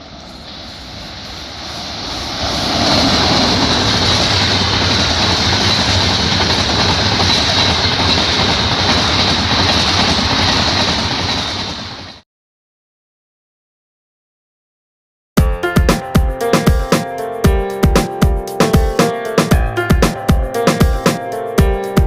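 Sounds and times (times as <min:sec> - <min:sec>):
train wheels rumbling on rails: 0:00.0 - 0:12.2.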